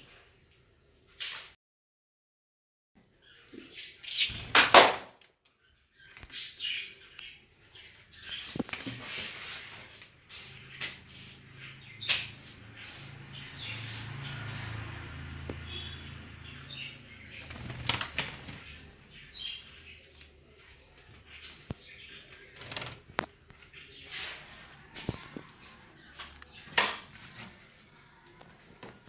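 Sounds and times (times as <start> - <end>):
birds flapping wings: 4.2 - 5.2, 17.3 - 19.0, 22.3 - 23.4
faint bird chirps: 15.5 - 25.0.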